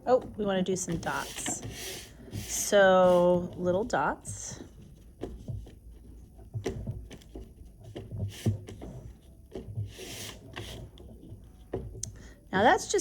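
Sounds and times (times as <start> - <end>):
crayon scratchy rubs: 0.6 - 4.0, 4.6 - 11.6.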